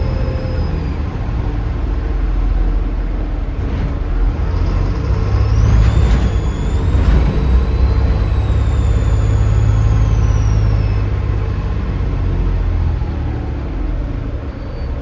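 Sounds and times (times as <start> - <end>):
bus engine thrumming: 0.0 - 15.0
turbo whistle: 5.5 - 12.0.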